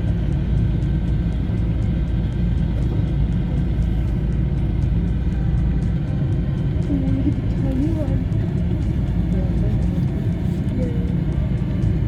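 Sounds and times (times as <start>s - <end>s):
car driving slowly: 0.0s - 12.0s.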